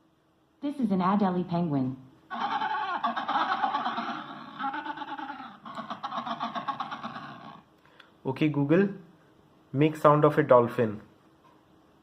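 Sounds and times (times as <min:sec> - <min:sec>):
penguin calls through speaker: 0:02.3 - 0:07.7.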